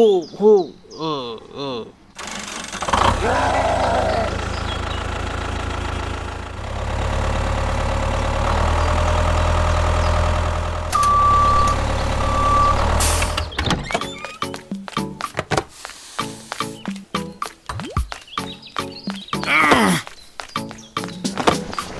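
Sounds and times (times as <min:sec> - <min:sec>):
tractor engine idling: 0:02.2 - 0:13.6
short beeps: 0:10.9 - 0:13.4.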